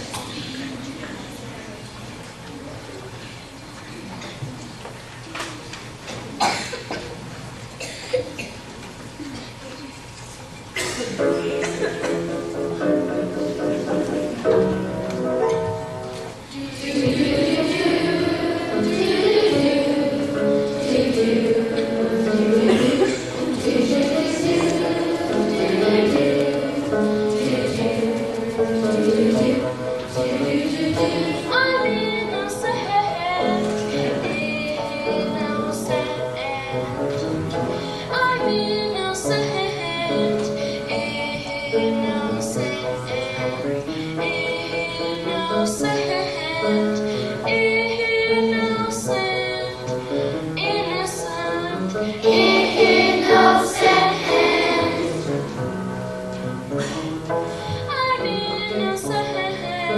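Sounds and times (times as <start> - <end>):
instrumental accompaniment: 11.2 - 37.7
several voices singing: 16.5 - 36.0, 52.1 - 55.4.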